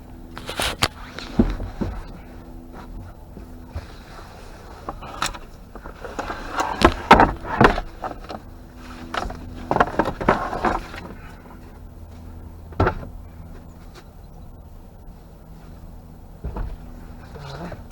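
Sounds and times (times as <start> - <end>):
faint low hum: 0.0 - 17.9
knocks and clunks: 0.4 - 4.0, 4.8 - 14.1, 16.4 - 17.9.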